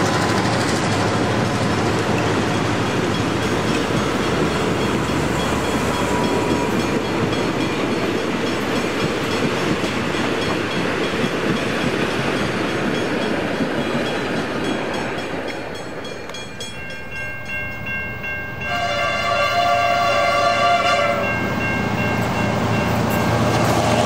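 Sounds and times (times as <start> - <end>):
train carriages rumbling past: 0.0 - 24.0
locomotive horn: 18.6 - 21.4.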